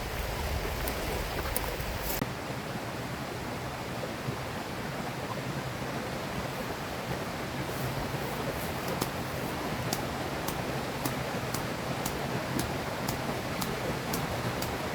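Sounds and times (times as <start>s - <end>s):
river water rushing: 5.6s - 14.9s.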